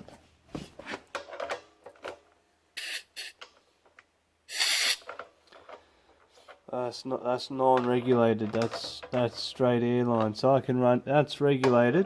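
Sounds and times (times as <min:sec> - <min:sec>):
compressed air hissing: 0:04.5 - 0:05.0.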